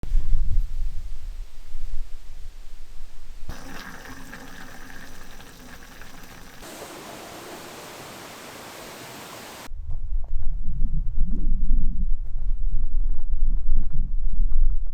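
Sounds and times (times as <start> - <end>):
rushing water: 3.5 - 9.7.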